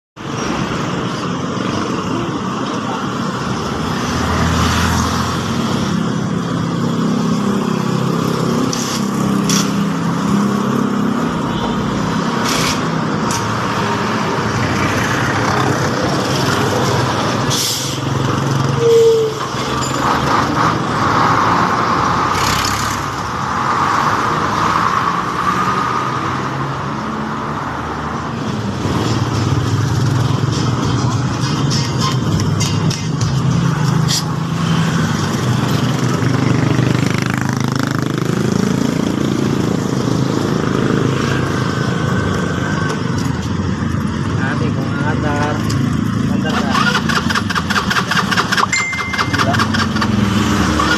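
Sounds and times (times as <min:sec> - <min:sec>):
vehicle engine noise: 0:00.2 - 0:50.9
brief high tone: 0:48.7 - 0:49.8.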